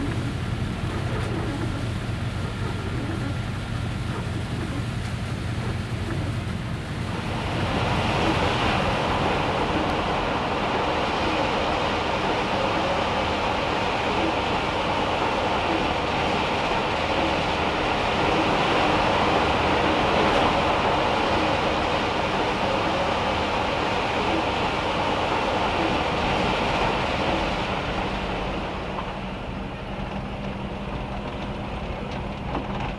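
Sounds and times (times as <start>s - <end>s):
heavy rain on a metal roof: 0.0s - 32.9s.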